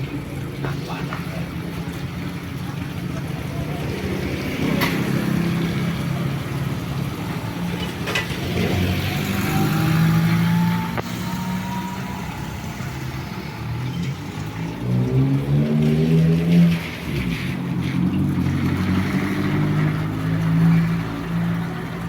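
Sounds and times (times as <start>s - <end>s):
vehicle engine hum: 0.0s - 22.0s
rising whine: 7.2s - 16.8s.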